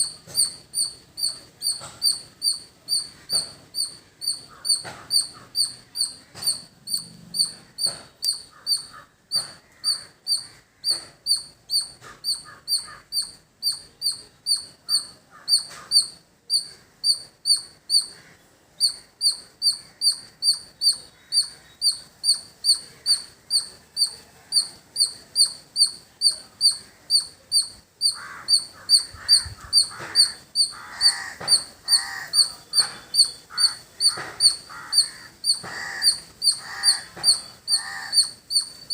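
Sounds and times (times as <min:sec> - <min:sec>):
squirrel chirping: 0:00.0 - 0:38.9
low warbling calls: 0:18.8 - 0:38.9.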